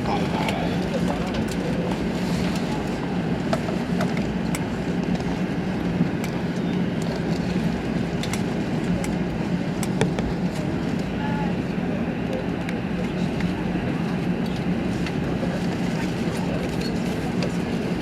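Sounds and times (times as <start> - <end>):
aircraft cabin rumble and hum: 0.0 - 18.0.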